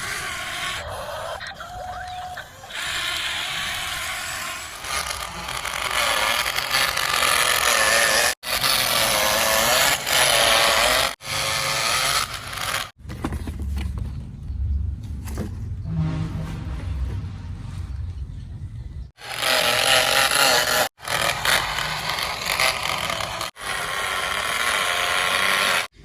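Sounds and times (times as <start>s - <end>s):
toy motors and gears whirring: 0.0s - 13.9s, 19.2s - 26.0s.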